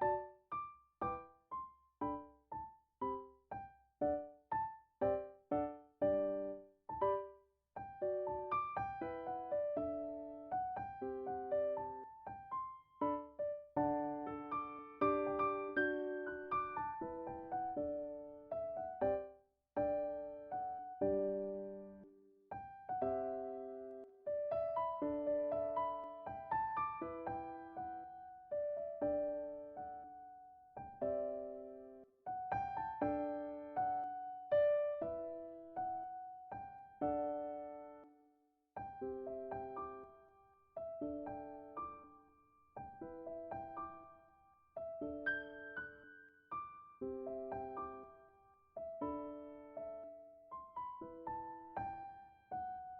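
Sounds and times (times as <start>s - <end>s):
gentle piano music: 0.0s - 38.2s, 38.8s - 52.9s.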